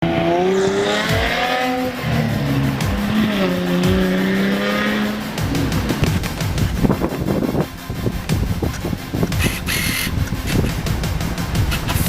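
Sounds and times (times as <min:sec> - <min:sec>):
car engine revving: 0:00.0 - 0:12.0
exhaust crackles and pops: 0:05.5 - 0:12.0.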